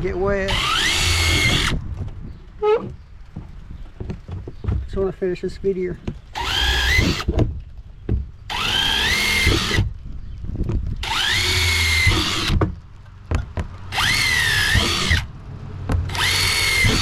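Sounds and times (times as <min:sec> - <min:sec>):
power drill whining: 0:00.5 - 0:01.8, 0:06.4 - 0:07.4, 0:08.5 - 0:09.9, 0:11.0 - 0:12.6, 0:13.9 - 0:15.3, 0:16.1 - 0:17.0.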